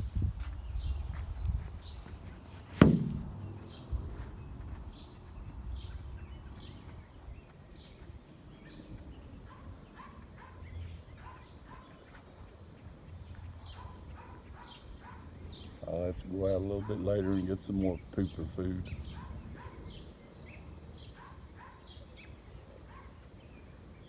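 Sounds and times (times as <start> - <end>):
low rumble of wind: 0.0 - 24.0
small birds chirping: 0.0 - 24.0
sharp knock: 2.7 - 3.7.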